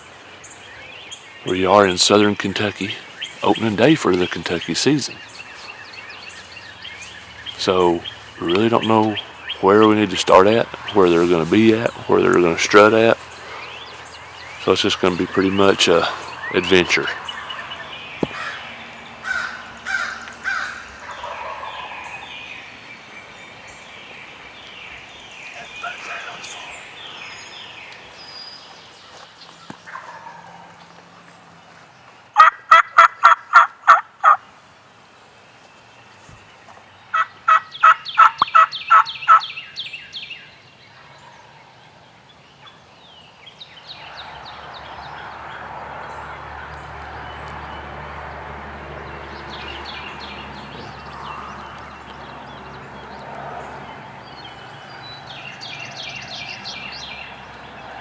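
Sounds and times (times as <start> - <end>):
turkey call yelping: 19.2 - 22.2, 32.4 - 34.4, 37.1 - 39.5.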